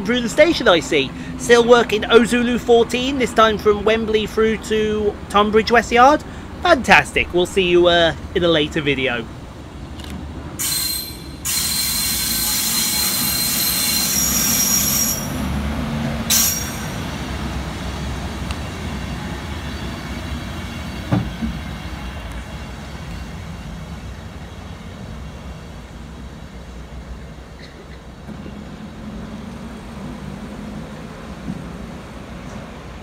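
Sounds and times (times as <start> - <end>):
train rumble: 0.0 - 33.0
train wheels squealing: 10.6 - 15.5, 16.3 - 17.2
knock: 21.1 - 21.6.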